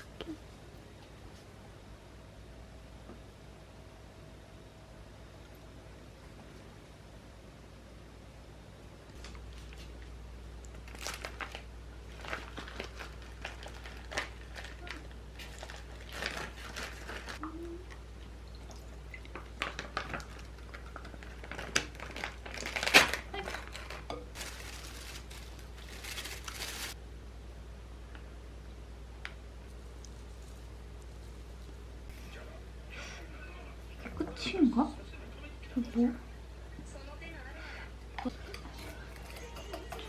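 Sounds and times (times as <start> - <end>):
crinkling: 9.1 - 17.5, 19.2 - 27.0.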